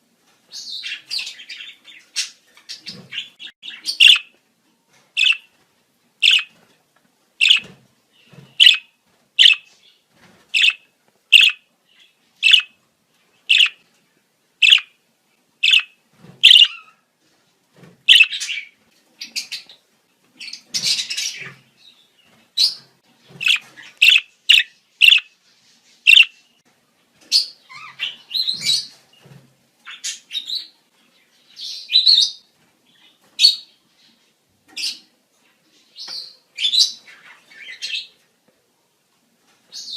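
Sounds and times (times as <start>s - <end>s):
budgerigars chirping and warbling: 0.6s - 4.3s, 5.2s - 5.5s, 6.2s - 6.5s, 7.4s - 9.7s, 10.6s - 11.6s, 12.4s - 12.8s, 13.5s - 13.8s, 14.6s - 14.9s, 15.6s - 17.0s, 18.1s - 19.7s, 22.6s - 25.4s, 26.1s - 26.4s, 27.3s - 29.0s.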